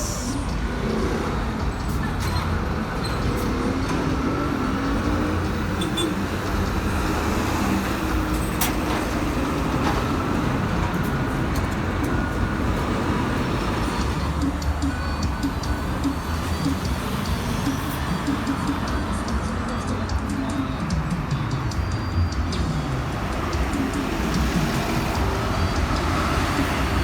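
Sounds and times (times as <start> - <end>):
buses and cars passing: 0.0 - 27.0.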